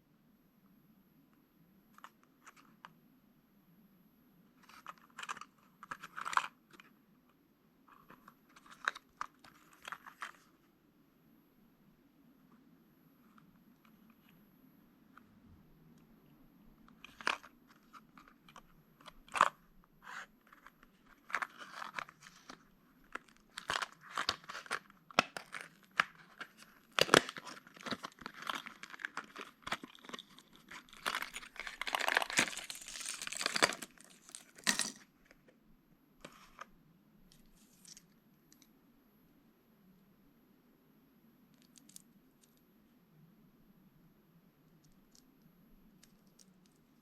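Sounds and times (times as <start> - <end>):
plastic packaging crinkling and tearing: 17.0 - 34.9.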